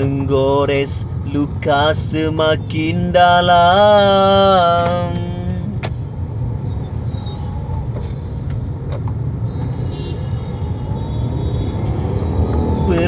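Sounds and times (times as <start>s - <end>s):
man singing: 0.0s - 5.8s, 12.8s - 13.0s
car engine and road noise: 0.0s - 13.0s.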